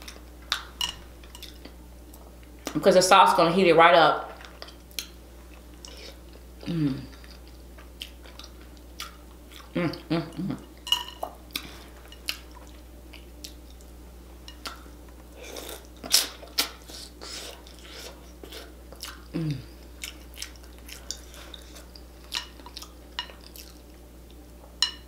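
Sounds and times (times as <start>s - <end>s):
person humming: 6.6s - 7.2s, 9.8s - 10.7s, 19.3s - 19.8s
wet chewing and lip smacking: 19.9s - 23.9s.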